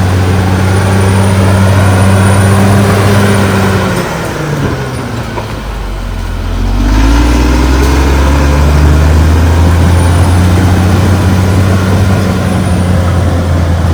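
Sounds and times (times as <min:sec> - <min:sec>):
bulldozer diesel engine revving: 0:00.0 - 0:13.9.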